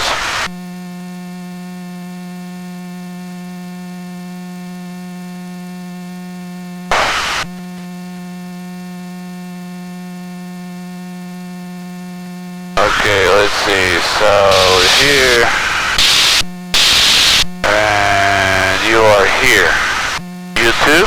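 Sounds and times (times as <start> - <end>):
burst of hiss: 6.9 - 7.5
electrical hum: 6.9 - 7.8, 12.8 - 21.0.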